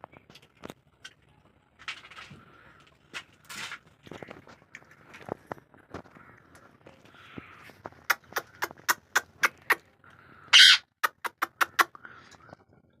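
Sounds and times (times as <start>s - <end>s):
beak crunching fruit clicks: 8.0s - 9.9s, 11.0s - 12.0s.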